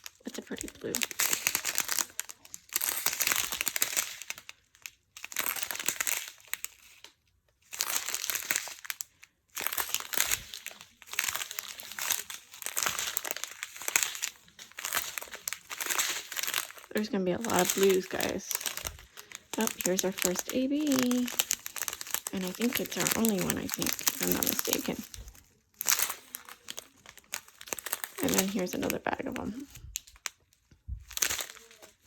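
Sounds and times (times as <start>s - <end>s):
plastic bags crinkling: 0.0s - 32.0s.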